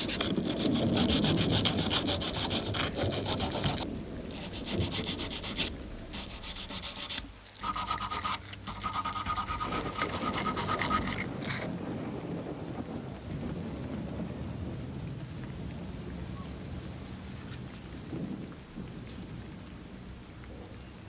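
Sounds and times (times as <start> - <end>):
sandpaper rubbing by hand: 0.0 - 11.7.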